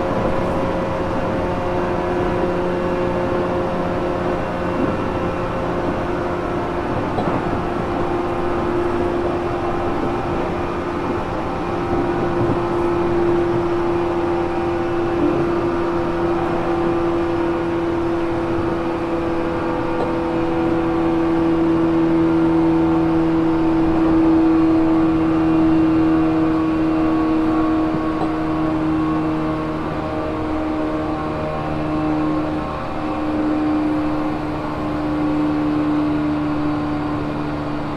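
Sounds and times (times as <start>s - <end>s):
electric train motor whine: 0.0s - 37.9s
wheel-on-rail rumble: 0.0s - 37.9s.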